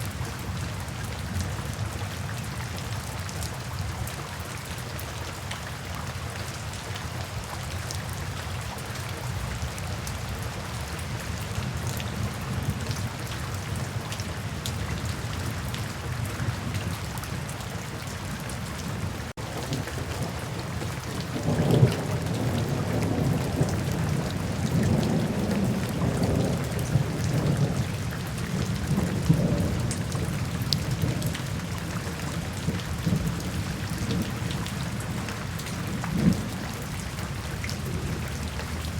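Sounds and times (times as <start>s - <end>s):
steady rain falling: 0.0s - 38.9s
thunder rolling: 19.4s - 27.8s.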